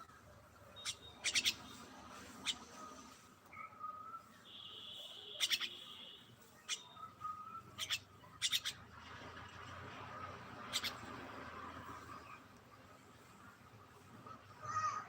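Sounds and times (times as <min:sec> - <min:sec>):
high bird trill: 0:00.6 - 0:03.8, 0:04.8 - 0:08.8, 0:10.7 - 0:11.0.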